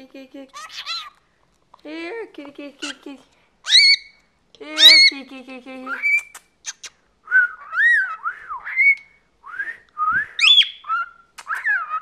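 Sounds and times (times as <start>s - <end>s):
cockatiel whistling: 6.0s - 12.0s.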